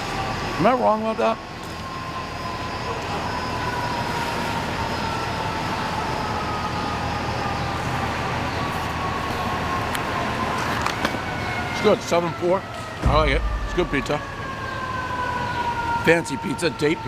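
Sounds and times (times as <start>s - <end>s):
city street traffic: 0.0s - 17.0s
vehicle whine falling in pitch: 13.0s - 15.2s.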